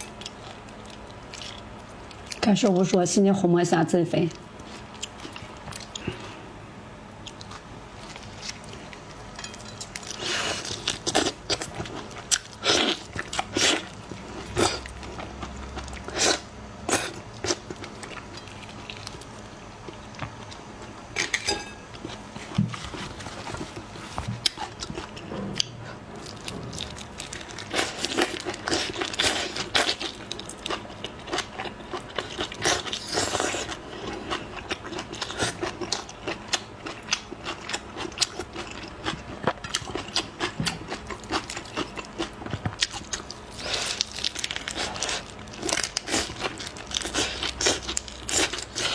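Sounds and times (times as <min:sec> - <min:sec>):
crunching and chewing shrimp: 0:00.0 - 0:02.9, 0:04.4 - 0:48.9.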